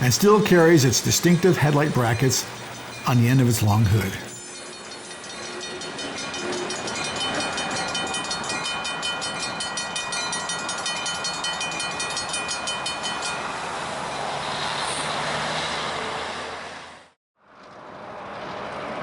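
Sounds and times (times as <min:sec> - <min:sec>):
crossing bell ringing rapidly: 0:00.0 - 0:13.9
train rumbling: 0:00.0 - 0:19.0.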